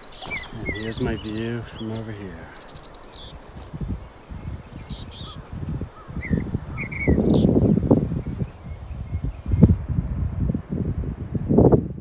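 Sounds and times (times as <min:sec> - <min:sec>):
low rumbling on microphone: 0:00.0 - 0:02.6, 0:03.2 - 0:12.0
songbirds singing: 0:00.0 - 0:09.8.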